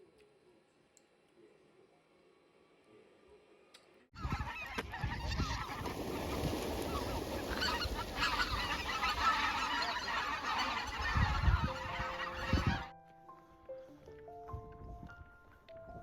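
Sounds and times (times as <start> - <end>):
flock of birds calling: 4.2 - 12.9.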